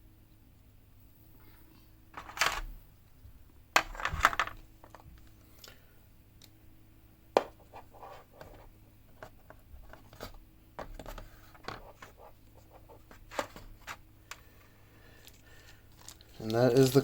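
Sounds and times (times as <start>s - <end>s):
packaging rustles: 15.2s - 17.0s.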